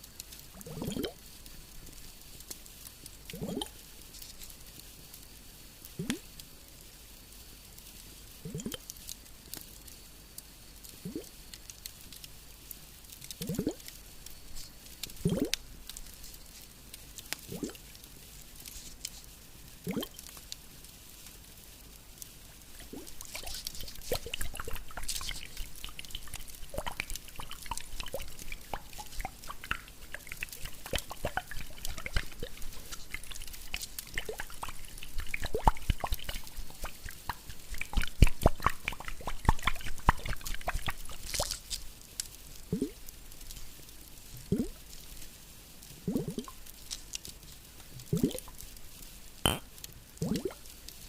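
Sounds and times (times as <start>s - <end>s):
watery plops: 0.6s - 1.2s, 15.2s - 15.6s, 19.8s - 20.2s, 22.8s - 41.6s, 48.1s - 48.4s, 49.5s - 50.6s.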